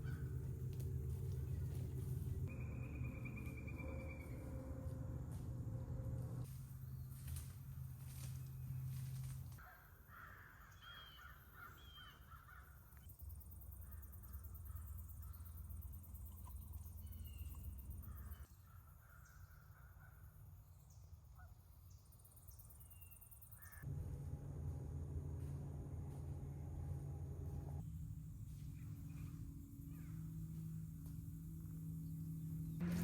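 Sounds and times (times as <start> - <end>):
low steady rumble: 0.0 - 9.6, 23.8 - 33.0
birds cawing: 9.6 - 12.8.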